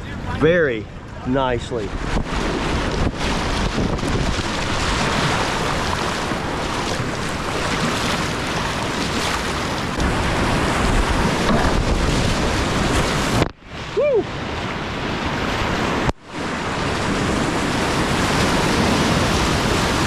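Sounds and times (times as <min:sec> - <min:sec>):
wind buffeting microphone: 0:00.0 - 0:20.0
river whitewater rushing: 0:04.4 - 0:14.4.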